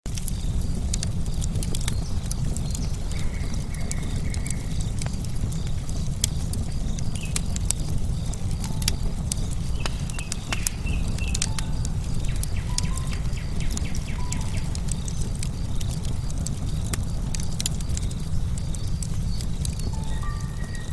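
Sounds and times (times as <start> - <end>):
wood fire crackling: 0.1 - 20.9
whistled bird notes: 8.5 - 15.3, 19.8 - 20.9.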